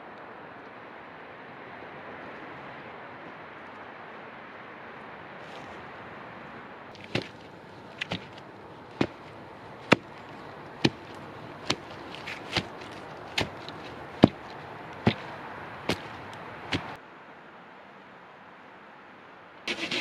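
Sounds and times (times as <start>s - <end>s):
hand tool striking wood: 7.0s - 8.4s, 9.0s - 17.0s.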